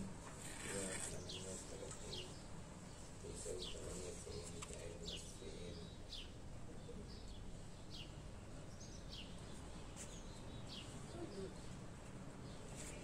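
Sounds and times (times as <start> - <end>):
low background noise: 0.0 - 13.0
small birds chirping: 0.0 - 13.0.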